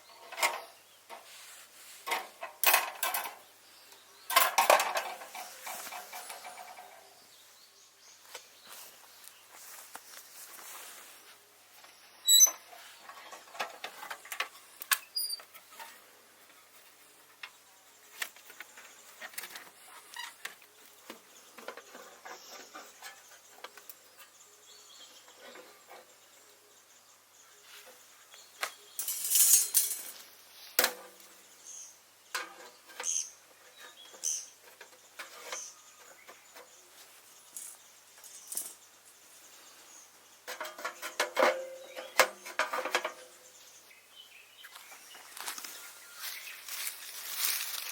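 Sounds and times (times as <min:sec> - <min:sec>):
rustling: 0:00.3 - 0:03.4, 0:04.3 - 0:07.0, 0:08.2 - 0:17.4, 0:44.6 - 0:47.9
clicks and knocks of handling: 0:02.0 - 0:03.4, 0:04.3 - 0:06.9, 0:32.3 - 0:36.7, 0:40.5 - 0:43.3.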